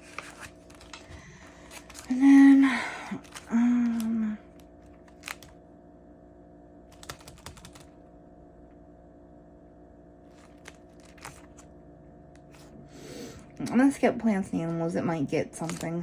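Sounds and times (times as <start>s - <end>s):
paper bills and envelopes rustling: 0.0s - 2.2s, 3.2s - 4.1s, 4.9s - 5.5s, 10.3s - 11.7s, 15.5s - 16.0s
steady low hum: 0.0s - 16.0s.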